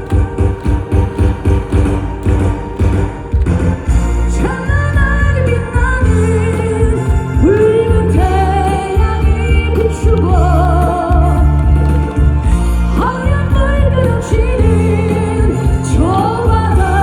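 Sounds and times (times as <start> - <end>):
amplified backing track with bass beat: 0.0 - 17.0
person singing with vibrato: 4.2 - 12.2.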